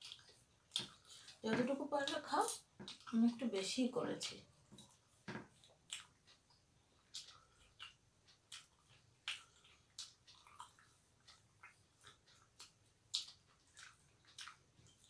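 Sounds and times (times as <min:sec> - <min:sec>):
people chewing: 0:00.0 - 0:03.6, 0:04.5 - 0:15.0.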